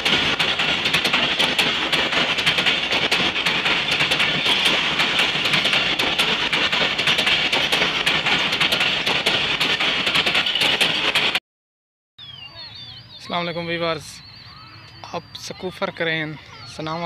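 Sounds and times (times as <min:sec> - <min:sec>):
train wheels rushing on rail: 0:00.0 - 0:11.4
wheels clicking over track: 0:00.0 - 0:11.4.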